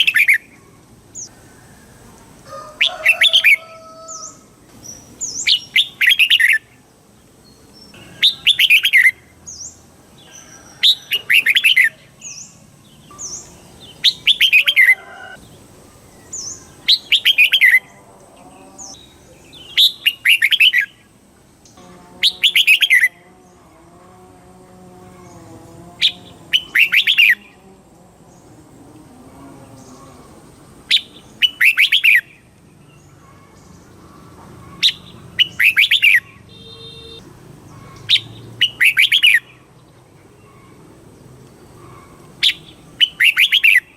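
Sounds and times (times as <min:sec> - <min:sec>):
bulbul singing: 0:00.0 - 0:01.4, 0:02.7 - 0:28.8, 0:29.4 - 0:43.9
high bird chirps: 0:03.1 - 0:06.7, 0:07.9 - 0:15.0, 0:16.2 - 0:18.0, 0:18.6 - 0:21.0, 0:22.2 - 0:23.1, 0:26.1 - 0:27.5, 0:30.9 - 0:32.5, 0:34.6 - 0:39.6, 0:41.8 - 0:43.9.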